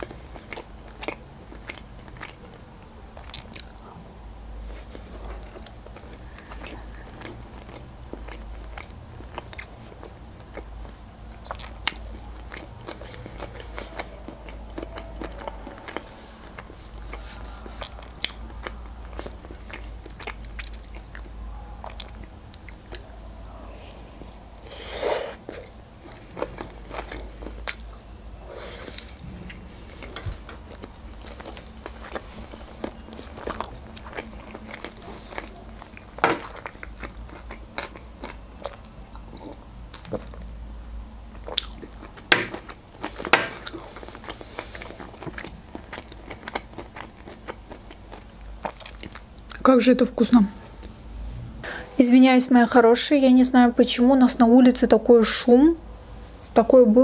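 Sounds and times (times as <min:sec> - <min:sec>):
wet mouth chewing clicks: 0:04.6 - 0:17.2, 0:17.8 - 0:23.6, 0:30.0 - 0:40.6.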